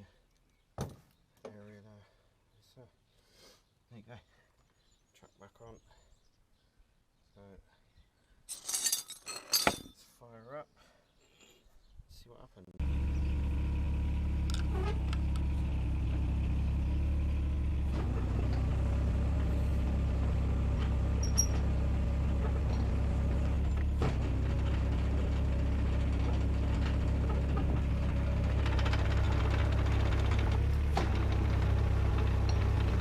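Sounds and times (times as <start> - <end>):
diesel excavator engine running: 12.8 - 33.0.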